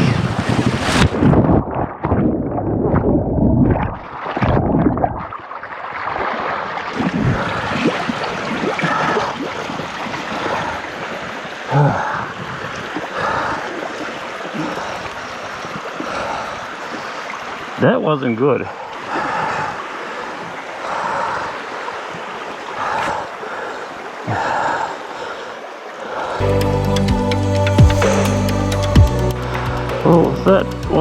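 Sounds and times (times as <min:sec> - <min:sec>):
splashing through water: 0:00.0 - 0:17.8
stream water rushing: 0:05.5 - 0:31.0.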